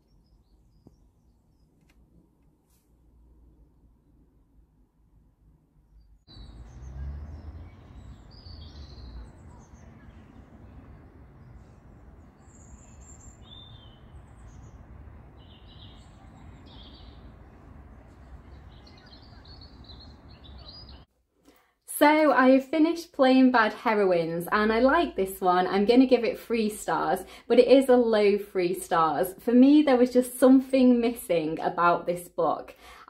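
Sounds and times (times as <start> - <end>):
low outdoor rumble: 3.1 - 21.1
birds chirping and singing: 6.3 - 21.1.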